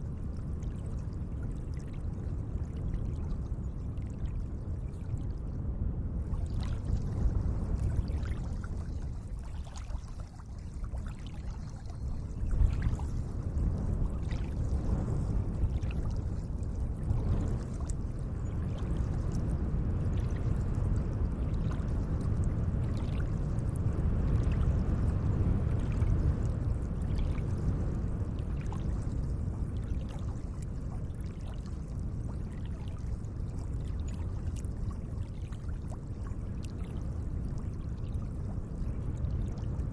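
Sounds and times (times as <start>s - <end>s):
small water splashes and drips: 0.1s - 5.6s, 6.2s - 39.9s
lake water washing: 7.8s - 19.3s.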